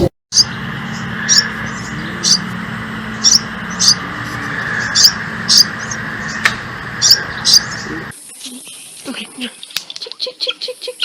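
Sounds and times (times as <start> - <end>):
bird chirping: 0.3 - 9.0
sharp click: 6.4 - 6.6.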